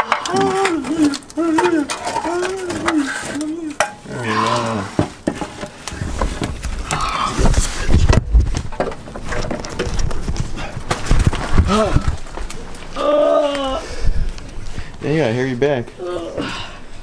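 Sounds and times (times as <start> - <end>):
tools knocking and clattering on metal: 0.0 - 4.1, 4.9 - 7.0
person speaking: 0.3 - 5.0.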